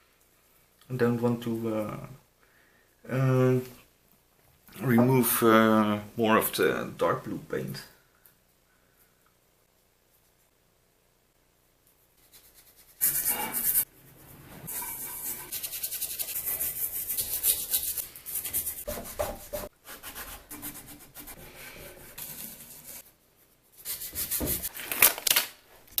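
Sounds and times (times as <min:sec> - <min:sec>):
scrubbing metal by hand: 0:12.3 - 0:23.0.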